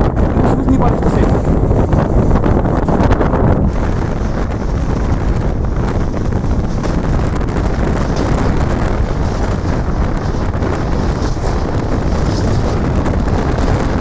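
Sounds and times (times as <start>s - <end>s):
train rumbling at speed: 0.0s - 14.0s
wind buffeting microphone: 0.0s - 14.0s.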